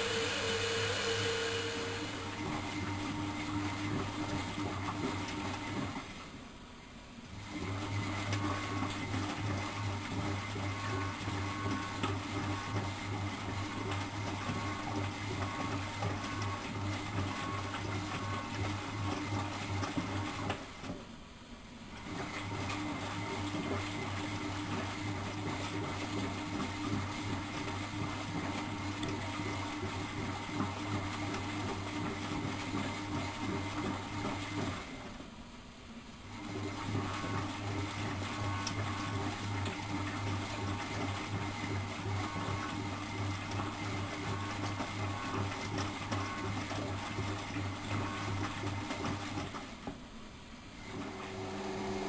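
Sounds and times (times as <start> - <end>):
washing machine motor humming: 0.0 - 52.0
water churning in drum: 22.2 - 35.0, 36.4 - 49.8.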